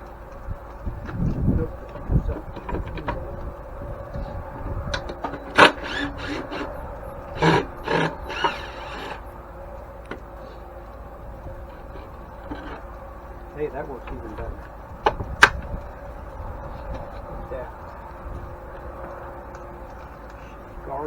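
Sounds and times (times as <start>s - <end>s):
scraping: 4.1s - 17.4s.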